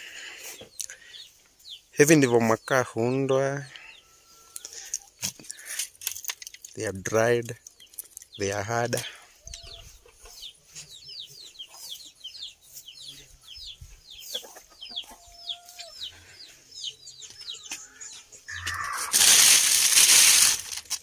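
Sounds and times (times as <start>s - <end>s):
bird peeping: 0.5s - 2.8s, 9.4s - 19.1s
plastic sheet rustling: 18.5s - 21.0s.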